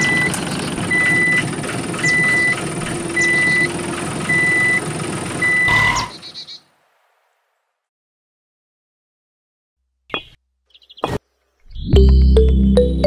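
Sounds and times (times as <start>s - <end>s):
reversing alarm beeping: 0.0s - 2.6s, 3.2s - 3.7s, 4.3s - 4.8s, 5.4s - 6.2s
vehicle engine running: 0.0s - 6.2s.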